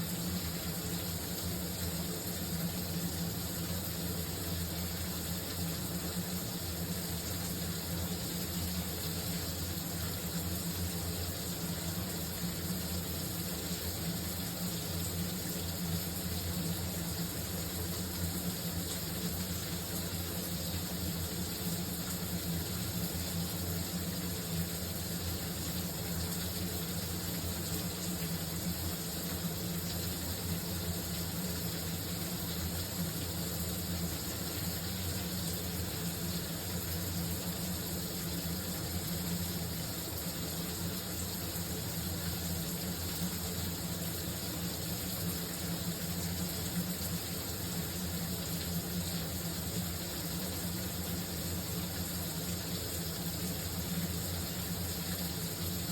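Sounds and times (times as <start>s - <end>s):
shower running: 0.0s - 55.9s.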